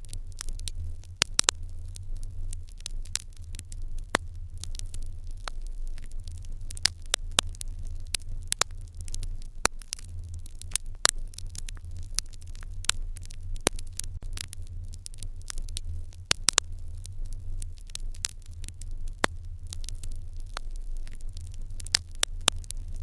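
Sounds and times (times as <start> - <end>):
wood fire popping and snapping: 0.0 - 23.0.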